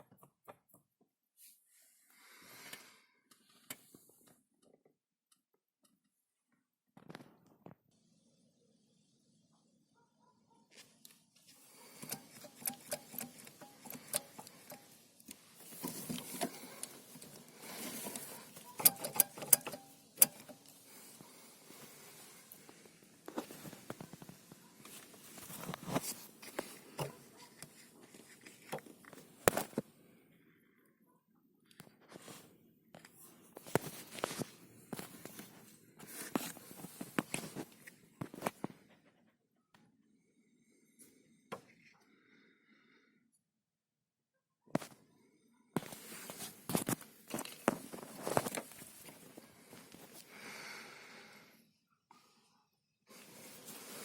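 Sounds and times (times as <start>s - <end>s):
rustling: 10.8s - 29.7s
gear lever clicking and clunking: 12.0s - 15.0s, 15.6s - 20.8s
gearshift lever clicking and knocking: 18.0s - 20.6s.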